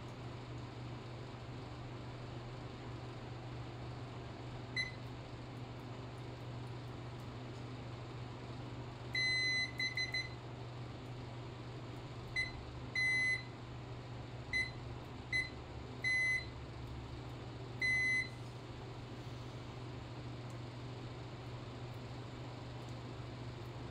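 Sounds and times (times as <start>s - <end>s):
steady low hum: 0.0s - 23.9s
multimeter continuity beeps: 4.8s - 5.0s, 9.1s - 10.4s, 12.4s - 13.5s, 14.5s - 16.6s, 17.8s - 18.4s.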